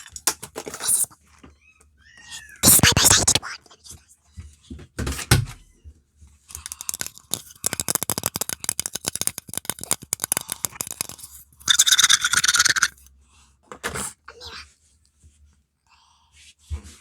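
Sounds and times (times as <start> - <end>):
scratching and tapping on object: 6.5 - 13.0.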